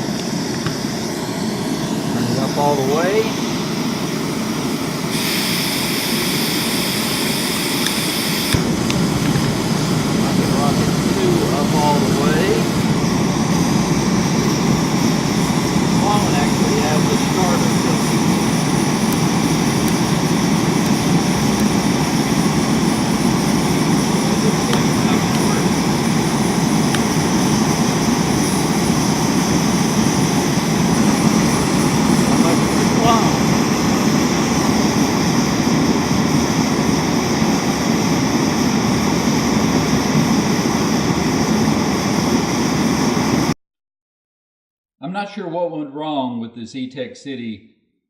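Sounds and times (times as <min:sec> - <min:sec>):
gas stove flames hissing: 0:00.0 - 0:43.5.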